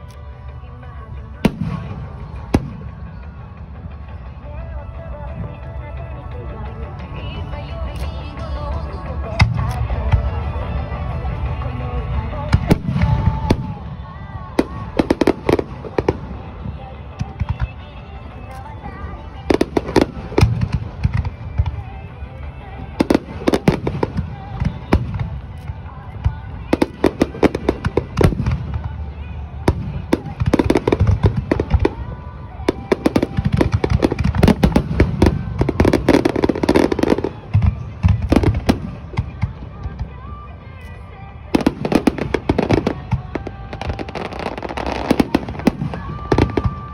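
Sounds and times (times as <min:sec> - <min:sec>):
music from loudspeakers: 0:00.0 - 0:46.9
distant fireworks rumble: 0:09.4 - 0:40.2.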